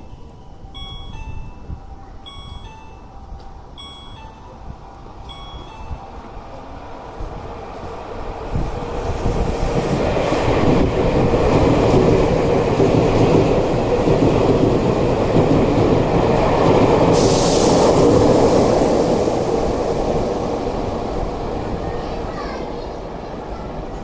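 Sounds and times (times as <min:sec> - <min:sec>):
train wheels rumbling on rail: 0:00.8 - 0:24.0
high hiss: 0:17.1 - 0:20.6.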